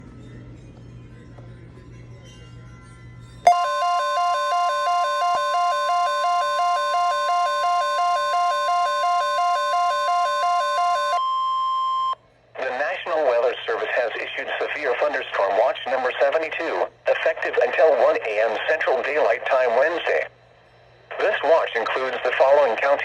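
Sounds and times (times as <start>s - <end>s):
steady electronic alert tone: 3.5s - 11.2s.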